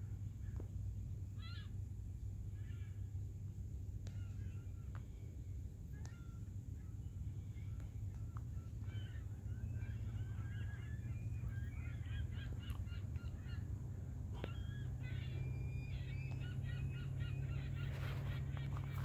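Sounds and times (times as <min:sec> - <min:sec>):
steady low rumble: 0:00.0 - 0:19.0
flock of birds calling: 0:02.6 - 0:03.1, 0:04.0 - 0:19.0.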